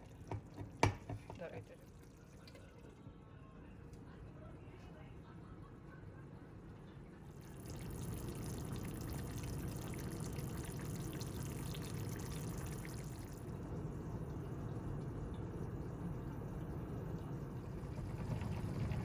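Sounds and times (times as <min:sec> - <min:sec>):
water pouring into pot: 0:07.4 - 0:13.5, 0:17.8 - 0:19.0.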